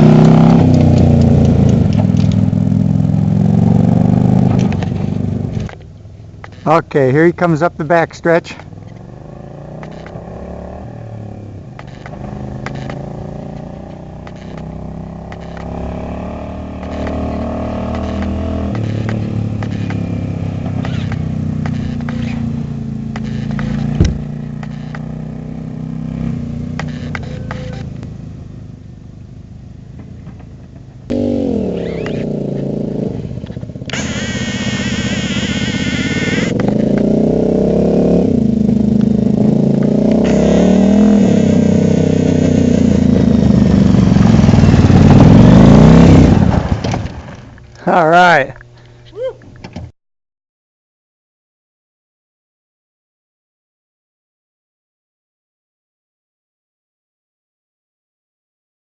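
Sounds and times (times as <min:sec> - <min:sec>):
motorcycle engine running: 0:00.0 - 0:07.0, 0:08.6 - 0:47.3
high wavering whine: 0:33.9 - 0:36.6.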